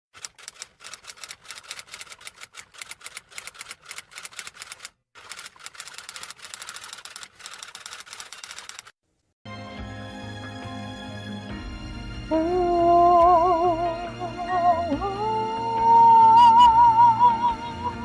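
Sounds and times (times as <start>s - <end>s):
rapid typing clicks: 0.2s - 8.9s.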